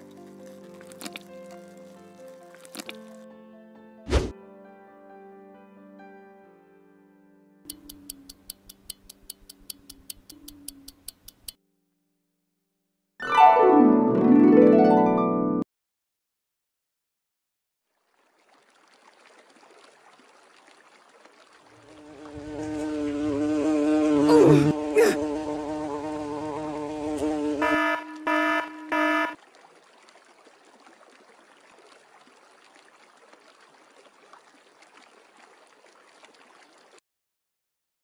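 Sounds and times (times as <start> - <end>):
bee buzzing: 21.8 - 29.4.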